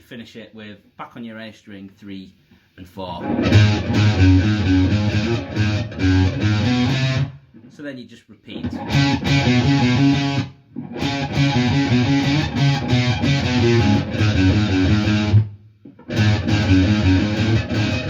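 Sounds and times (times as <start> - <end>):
electric guitar rock riff: 3.2 - 7.4, 8.6 - 18.0.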